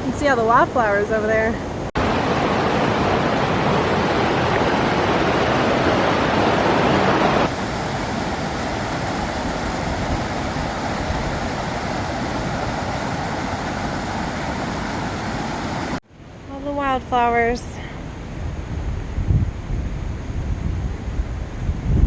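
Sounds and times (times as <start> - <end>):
creek water rushing: 0.2 - 16.0.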